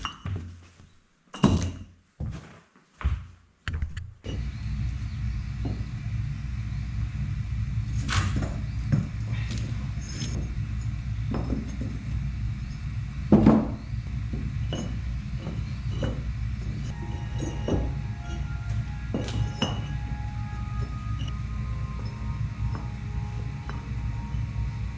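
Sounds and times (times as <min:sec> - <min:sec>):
steady low hum: 0:03.7 - 0:24.9
bricks clinking against a trowel: 0:14.6 - 0:18.5.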